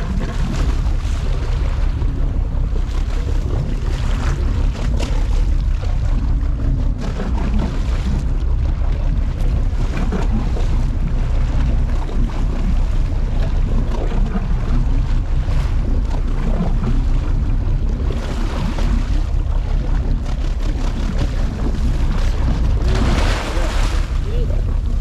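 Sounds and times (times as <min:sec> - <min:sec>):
boat engine rumble: 0:00.0 - 0:25.0
water noise: 0:00.0 - 0:25.0
wind: 0:00.0 - 0:25.0.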